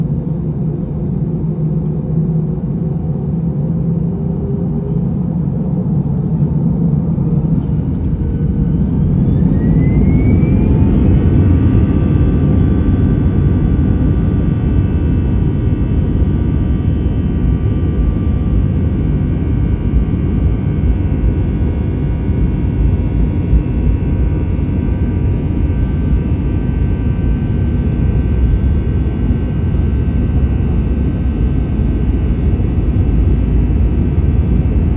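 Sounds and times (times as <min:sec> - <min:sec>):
jet engines spooling up: 0:07.3 - 0:13.0.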